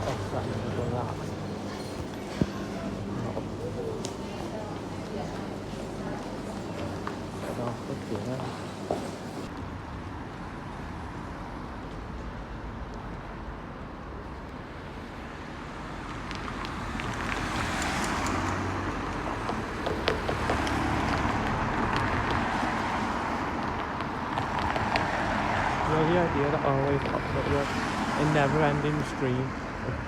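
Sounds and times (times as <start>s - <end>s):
cars passing: 5.3s - 30.0s.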